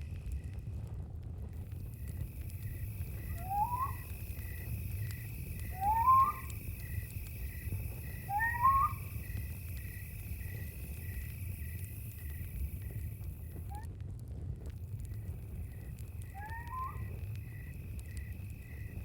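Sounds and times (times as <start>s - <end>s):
crickets trilling: 0.0s - 0.7s, 1.6s - 13.9s, 14.7s - 19.0s
campfire crackling: 0.0s - 19.0s
low rumble: 0.0s - 19.0s
rising whistled call: 2.6s - 11.3s, 16.2s - 17.7s.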